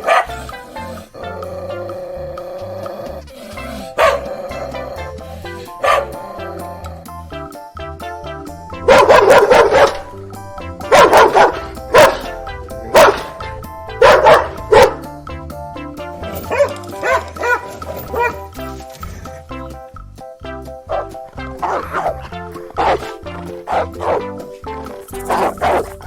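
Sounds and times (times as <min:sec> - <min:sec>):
dog barking: 0:00.0 - 0:01.0, 0:03.6 - 0:04.4, 0:05.7 - 0:06.4, 0:08.8 - 0:10.2, 0:10.8 - 0:15.1, 0:16.3 - 0:19.4, 0:20.9 - 0:26.0
background music: 0:00.0 - 0:26.0.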